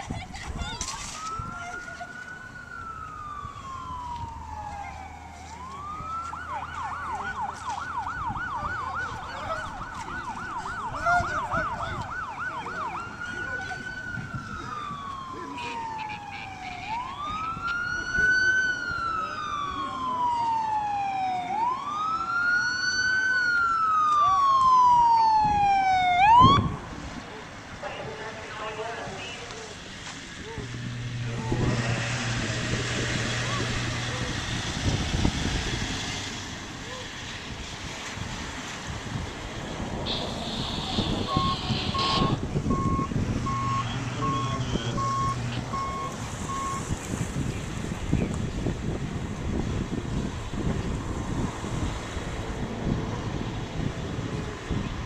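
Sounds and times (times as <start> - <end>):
wind noise: 0.0 - 4.9, 7.8 - 19.2, 24.4 - 28.4, 30.3 - 55.0
emergency siren wailing: 0.8 - 27.2, 27.8 - 38.4, 39.9 - 48.8
backup alarm beeping: 40.1 - 46.8.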